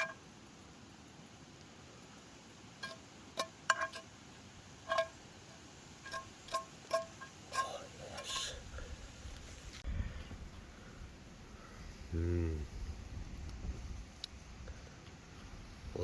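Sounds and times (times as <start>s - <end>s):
metal utensil clinking on pan: 2.8s - 4.1s, 4.8s - 5.2s, 6.0s - 8.5s.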